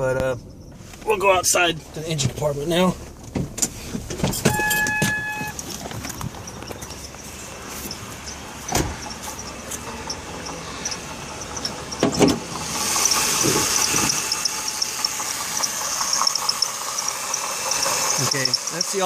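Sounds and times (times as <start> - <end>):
car engine running: 0.0 - 19.0
water pump bearing chirping: 6.2 - 19.0.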